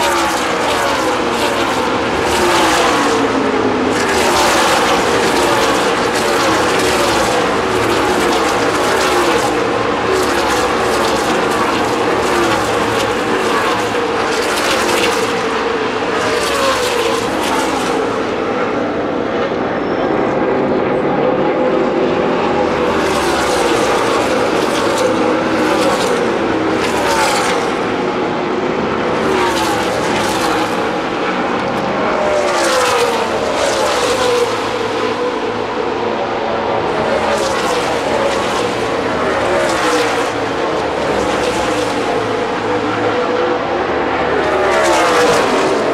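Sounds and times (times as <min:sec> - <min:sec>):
race cars passing: 0:00.0 - 0:45.9.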